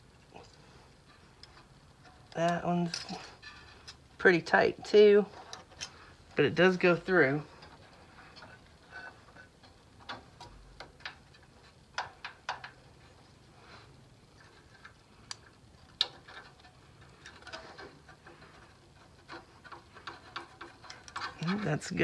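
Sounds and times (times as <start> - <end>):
hand tools clicking and tapping: 7.5 - 13.2, 14.4 - 21.7.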